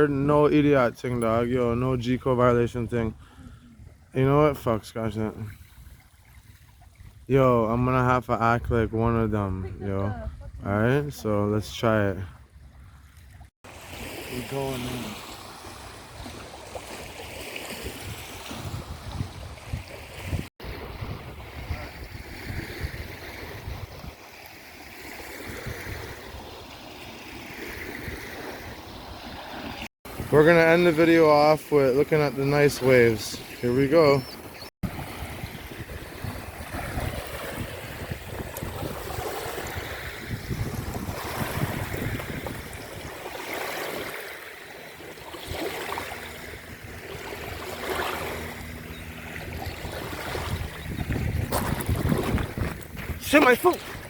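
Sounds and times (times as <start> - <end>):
waves washing on beach: 13.6 - 54.0
wind buffeting microphone: 17.8 - 24.2, 33.9 - 43.5, 45.0 - 54.0.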